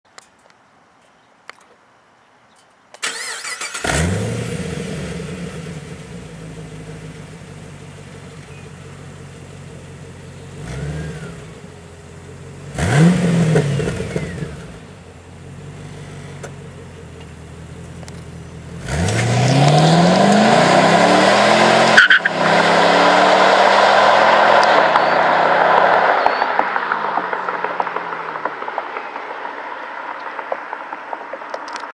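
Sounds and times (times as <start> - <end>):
car engine idling: 3.0 - 19.0
car engine revving: 3.0 - 30.8
car engine starting: 3.0 - 31.9.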